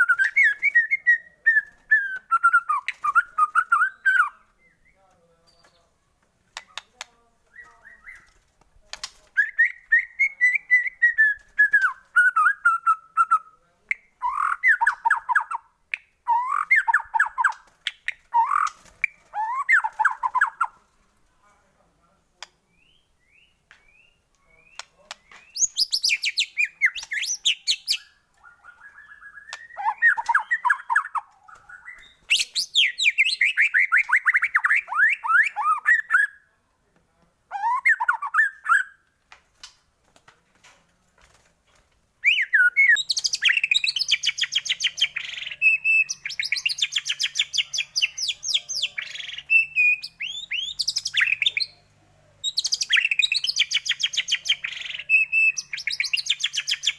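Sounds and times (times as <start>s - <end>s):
songbird singing whistled phrases: 0.0s - 5.9s, 7.5s - 8.4s, 9.3s - 20.8s, 22.7s - 36.4s, 37.5s - 39.0s, 42.2s - 51.8s, 52.4s - 56.9s.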